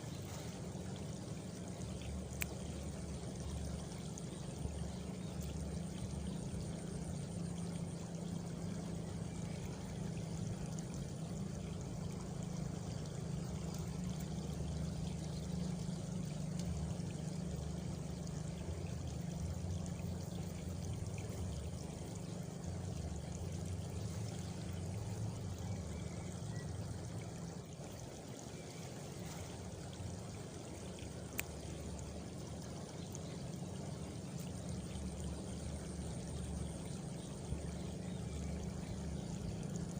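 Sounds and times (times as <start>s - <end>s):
faint insect trill: 0.0s - 39.9s
running water rushing: 0.0s - 39.9s.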